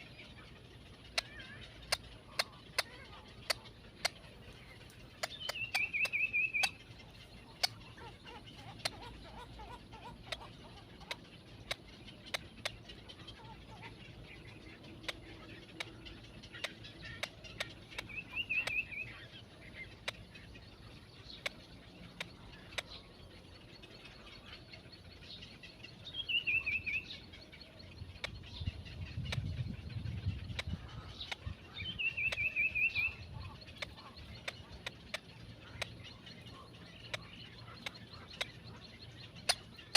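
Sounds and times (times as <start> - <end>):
sharp ticks: 1.0 - 9.2, 10.2 - 13.1, 14.3 - 23.1, 28.2 - 28.6, 30.2 - 39.9.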